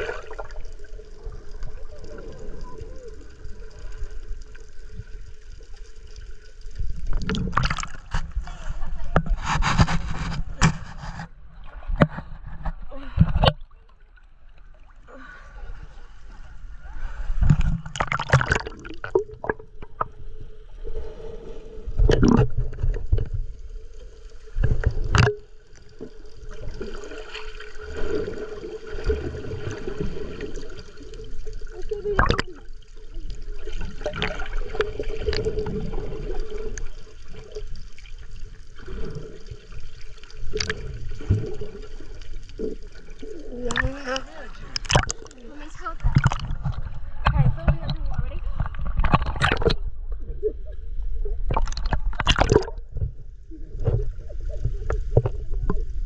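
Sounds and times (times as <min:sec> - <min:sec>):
sea water splashing: 0:00.0 - 0:12.3, 0:13.0 - 0:50.5, 0:51.3 - 0:56.0.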